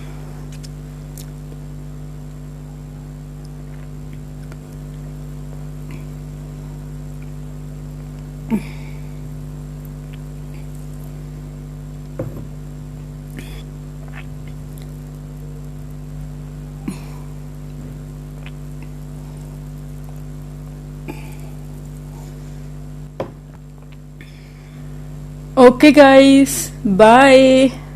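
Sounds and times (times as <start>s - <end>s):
electrical hum: 0.0s - 27.9s.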